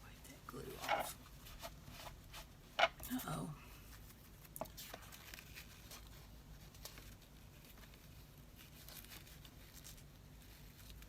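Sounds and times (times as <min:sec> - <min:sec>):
low room hum: 0:00.0 - 0:11.0
paper and card rustling: 0:03.8 - 0:11.0.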